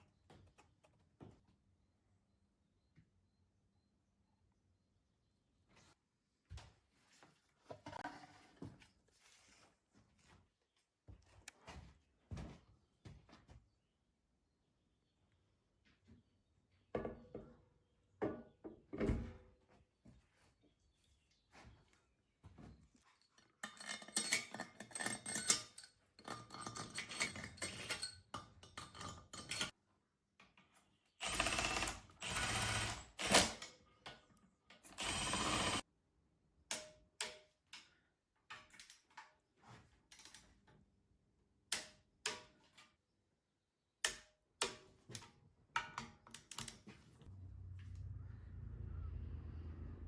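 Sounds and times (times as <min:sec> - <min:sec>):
metal tools clattering: 0:23.1 - 0:29.8.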